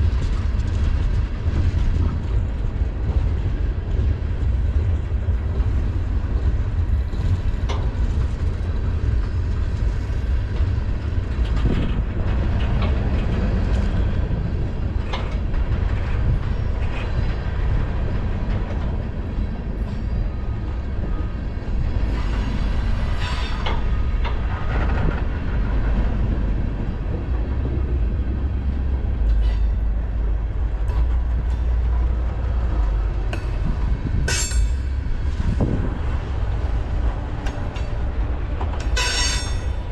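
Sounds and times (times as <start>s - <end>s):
freight train rumbling past: 0.0s - 39.9s
wheels clacking over rail: 23.0s - 39.9s.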